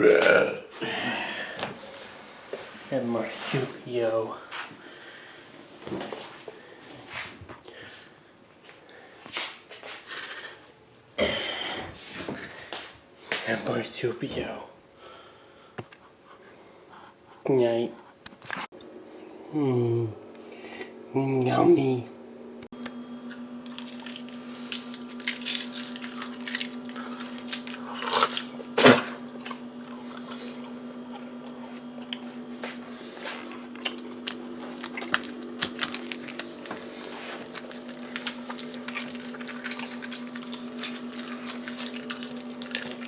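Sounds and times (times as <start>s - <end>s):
low hum: 18.8s - 43.0s
close chewing and biting: 23.2s - 43.0s.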